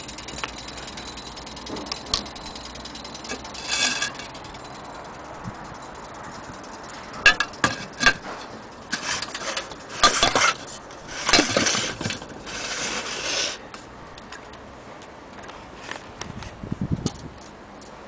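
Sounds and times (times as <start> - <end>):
hard objects clicking: 0.0 - 12.6
hard objects scraping: 1.6 - 4.8, 6.8 - 13.9.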